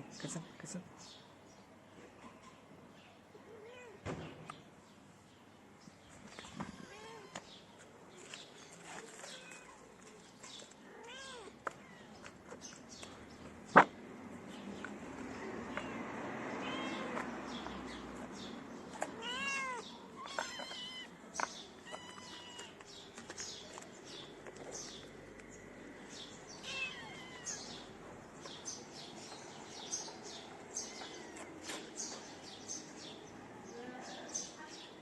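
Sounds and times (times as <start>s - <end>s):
kitten meowing: 16.6s - 17.2s, 19.1s - 21.1s, 21.8s - 22.7s, 26.6s - 27.8s.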